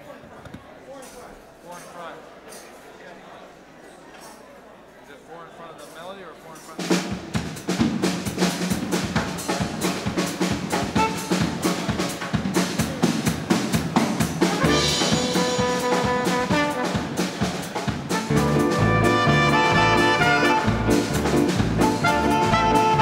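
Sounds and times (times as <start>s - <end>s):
drum and percussion rhythm: 6.6s - 23.0s
latin dance band playing: 6.8s - 23.0s
horns holding notes: 10.8s - 11.8s, 14.4s - 23.0s.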